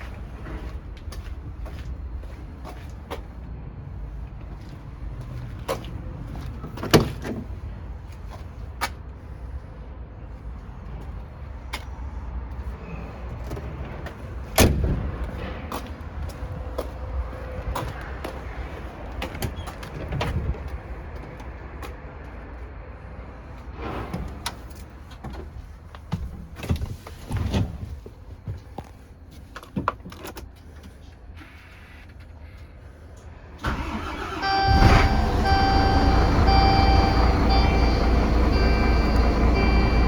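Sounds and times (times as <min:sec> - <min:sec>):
diesel truck engine running: 0:33.6 - 0:40.0.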